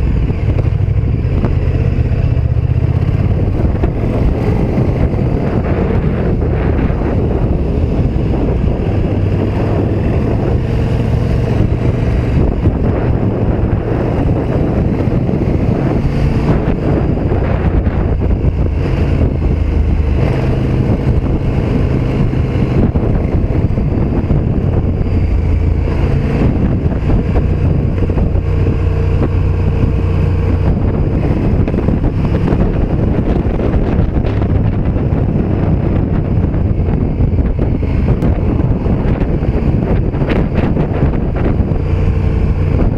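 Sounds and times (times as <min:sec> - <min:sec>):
motorcycle engine shifting gears: 0:00.0 - 0:42.9
wind noise on microphone: 0:00.0 - 0:42.9.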